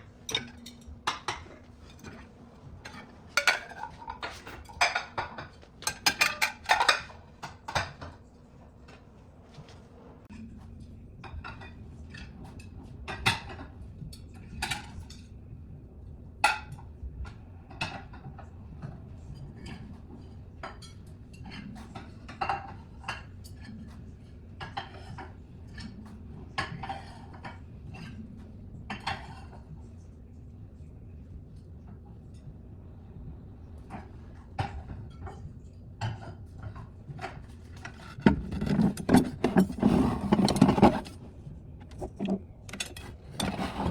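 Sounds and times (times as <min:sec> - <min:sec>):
dishes and cutlery clinking: 0:00.1 - 0:08.2, 0:17.7 - 0:28.2, 0:34.6 - 0:41.2.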